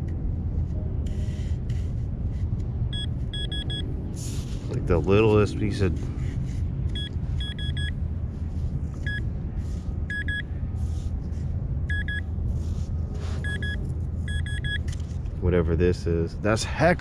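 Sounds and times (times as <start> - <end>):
low rumble: 0.0 - 17.0
metal detector high-pitched beeps: 3.0 - 3.8, 7.0 - 7.9, 10.1 - 10.4, 11.9 - 12.2, 13.4 - 14.8.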